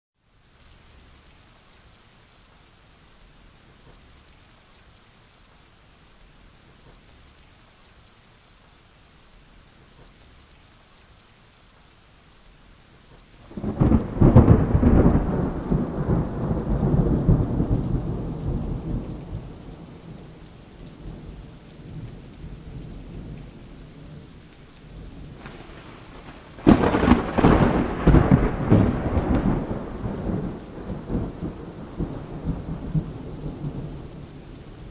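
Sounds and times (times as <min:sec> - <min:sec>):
faint hiss of rain: 0:00.2 - 0:34.9
rolling thunderclap: 0:13.4 - 0:23.6, 0:25.1 - 0:34.9.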